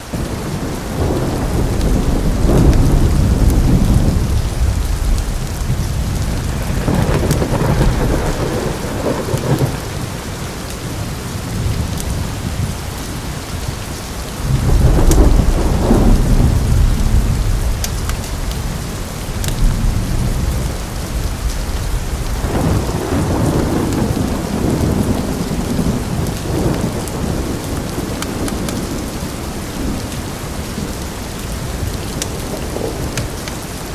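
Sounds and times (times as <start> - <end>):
heavy rain hissing: 0.0 - 33.9
rolling thunder: 0.1 - 33.9
wood fire crackling: 13.8 - 33.9.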